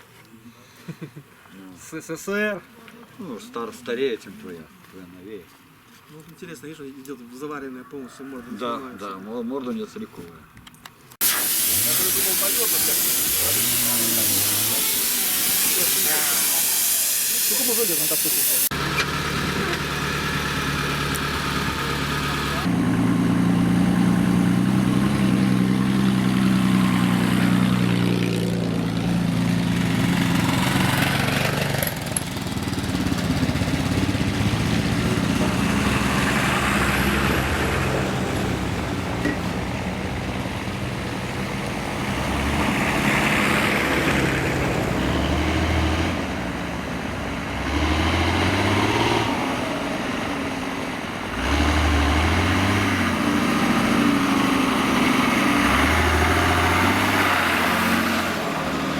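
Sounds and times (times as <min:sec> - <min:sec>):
vehicle engine idling: 0:11.8 - 0:45.1.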